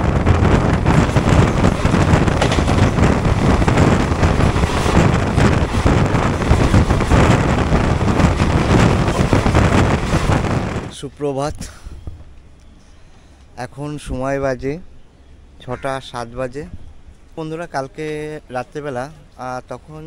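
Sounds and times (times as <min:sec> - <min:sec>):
train wheels clattering on track: 0:00.0 - 0:10.9
wind buffeting microphone: 0:00.0 - 0:12.6, 0:16.4 - 0:17.4.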